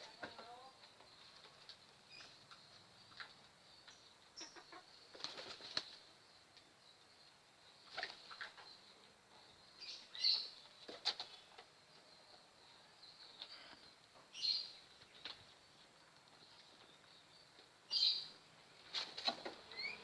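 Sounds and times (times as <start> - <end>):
wings fluttering: 5.1 - 6.0, 18.9 - 19.9.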